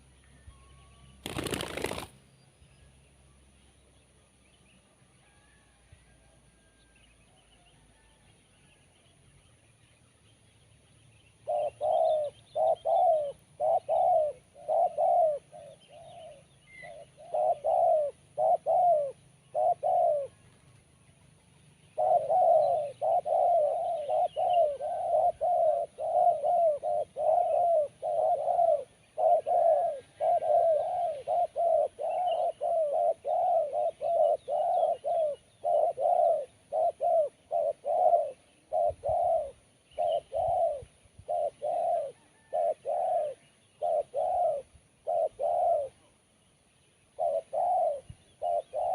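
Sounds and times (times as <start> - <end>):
dove cooing: 1.2 - 2.1, 11.4 - 20.8, 21.9 - 46.2, 47.1 - 48.9.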